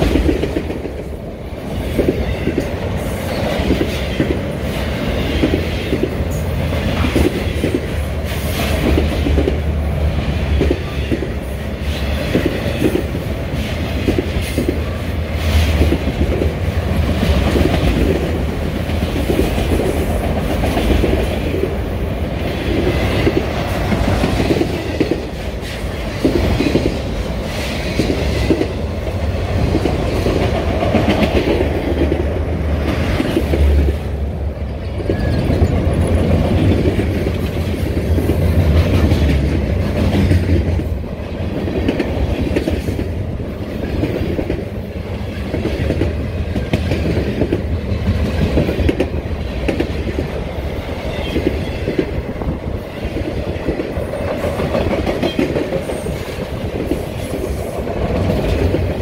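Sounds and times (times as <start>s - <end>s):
train wheels clacking over rail joints: 0.0s - 34.0s, 34.6s - 59.0s
train low rumble: 0.0s - 59.0s.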